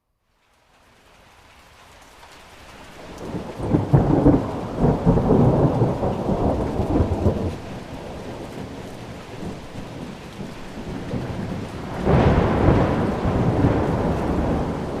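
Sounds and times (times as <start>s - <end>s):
rain hiss: 0.3s - 15.0s
thunder rolling: 3.2s - 15.0s.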